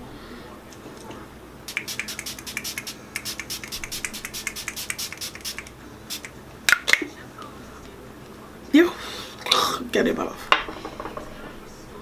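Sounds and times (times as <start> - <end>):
mist bottle spraying: 1.7 - 6.4.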